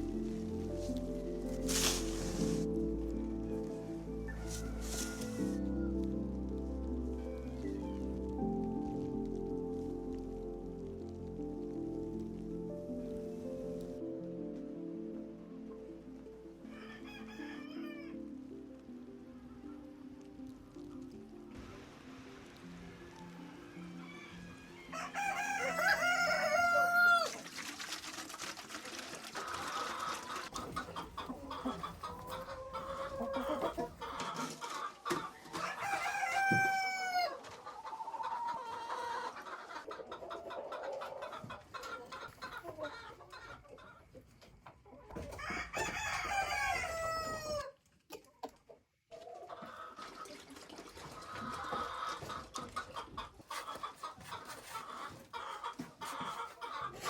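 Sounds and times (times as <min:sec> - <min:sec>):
rooster crowing: 0:04.3 - 0:06.0, 0:16.7 - 0:18.2, 0:23.1 - 0:27.4, 0:35.5 - 0:37.4, 0:45.4 - 0:47.7
chickens clucking: 0:23.4 - 0:57.0.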